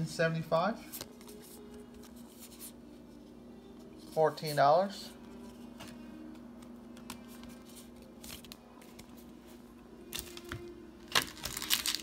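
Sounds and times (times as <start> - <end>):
faint steady hum: 0.0 - 12.0
trading cards clicking and rustling: 5.3 - 9.3
foil pack crinkling and tearing: 10.1 - 12.0.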